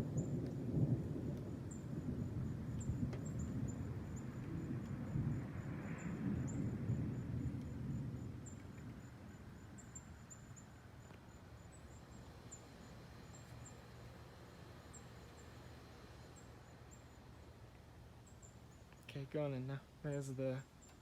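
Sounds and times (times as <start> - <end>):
low thunder rumble: 0.0 - 13.4
insect chirps: 0.0 - 21.0.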